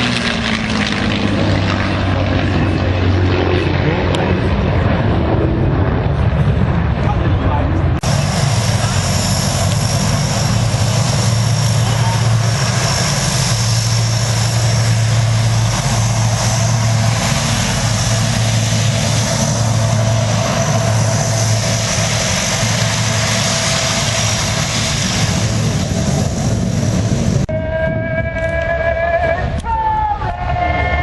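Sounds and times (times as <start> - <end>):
loud engine hum and hiss: 8.0 - 27.5.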